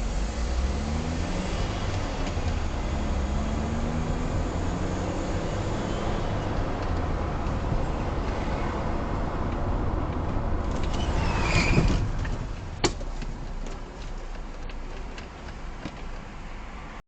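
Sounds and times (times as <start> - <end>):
car engine and road noise: 0.0 - 17.0
high squeal: 10.8 - 12.2.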